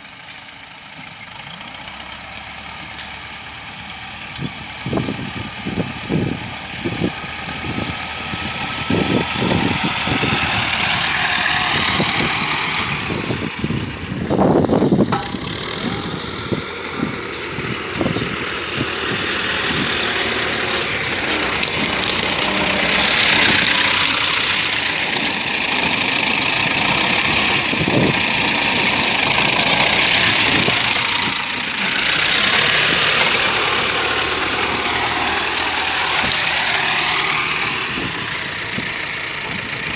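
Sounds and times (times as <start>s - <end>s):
tractor diesel engine running: 0.0s - 39.9s
knocks and clanks: 14.0s - 35.3s.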